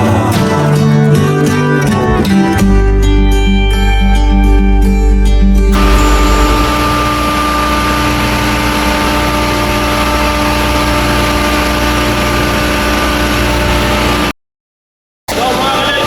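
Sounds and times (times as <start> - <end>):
steady whining tones: 2.2 - 14.3
chiller hiss and hum: 5.7 - 14.3.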